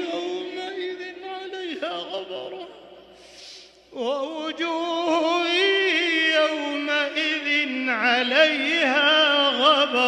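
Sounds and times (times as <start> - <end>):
man chanting recitation: 0.0 - 3.0, 3.9 - 10.0
quick breath in: 3.1 - 3.9.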